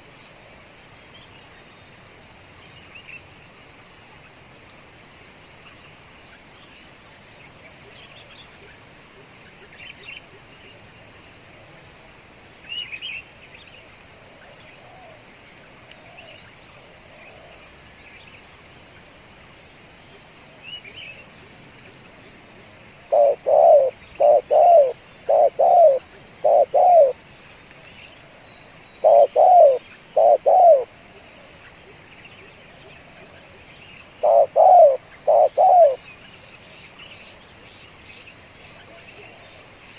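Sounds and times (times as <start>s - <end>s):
insect drone: 0.0s - 39.9s
small birds chirping: 23.0s - 30.9s, 31.6s - 39.9s
dove cooing: 23.1s - 27.2s, 29.0s - 30.9s, 34.2s - 36.0s.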